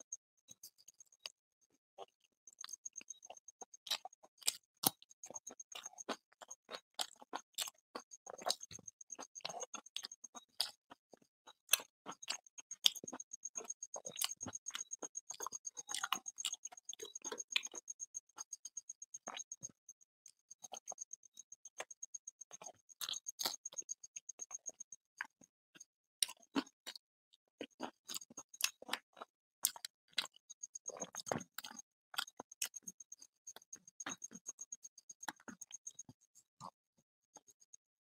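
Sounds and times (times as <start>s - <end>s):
faint high-pitched ticking: 0.0s - 27.0s, 27.7s - 38.0s
wet chewing and lip smacks: 2.0s - 19.8s, 20.5s - 25.5s, 26.2s - 27.0s, 27.6s - 36.8s.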